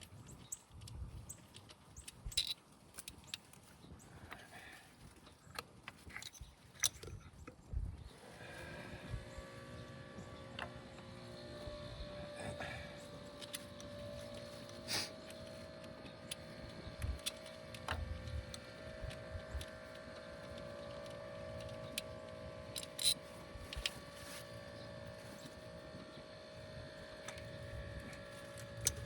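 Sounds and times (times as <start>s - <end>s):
steady background hum: 0.1s - 29.0s
hand tools clicking on metal: 0.4s - 3.7s, 13.2s - 24.6s.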